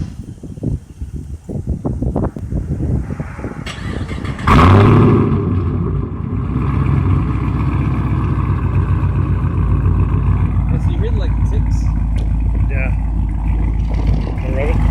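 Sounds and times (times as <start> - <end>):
engine cranking and starting: 3.7 - 5.4, 12.0 - 14.9
engine idling: 3.7 - 14.9.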